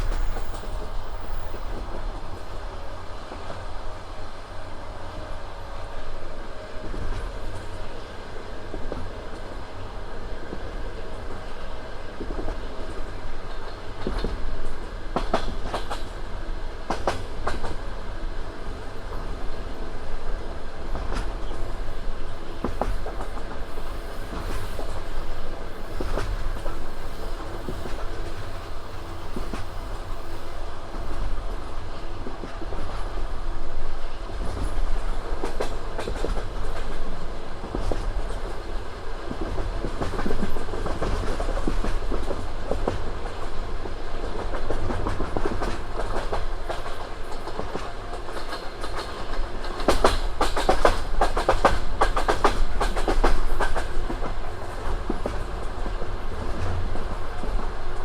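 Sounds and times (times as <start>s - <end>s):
train rumble: 0.0s - 58.0s
train wheels clattering over rail joints: 13.5s - 16.2s, 34.3s - 43.6s, 44.2s - 57.8s.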